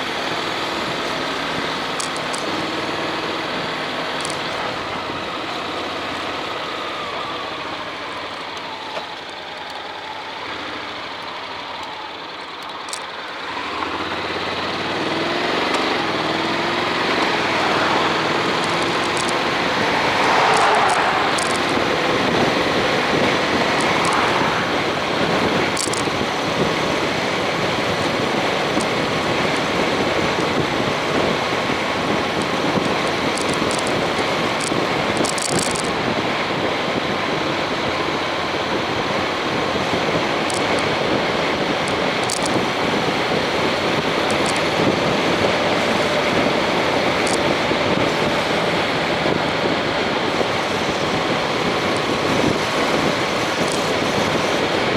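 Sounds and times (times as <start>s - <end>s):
motorcycle engine running: 0.0s - 54.9s
wind rushing over microphone: 15.0s - 54.9s.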